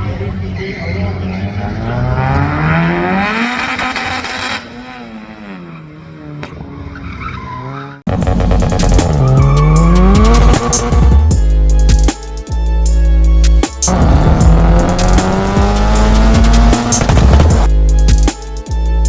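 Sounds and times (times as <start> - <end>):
car engine revving: 0.3 - 11.4, 13.5 - 17.8
sharp exhaust crackles: 8.1 - 11.1, 13.8 - 17.7.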